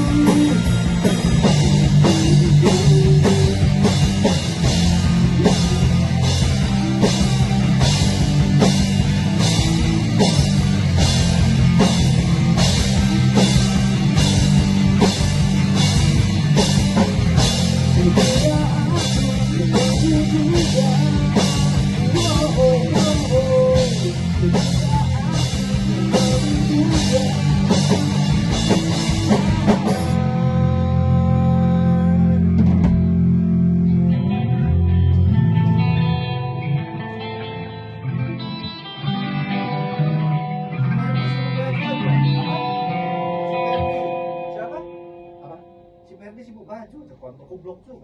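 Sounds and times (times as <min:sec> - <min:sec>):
rock band playing: 0:00.0 - 0:46.3
lead guitar bending notes: 0:00.0 - 0:46.4.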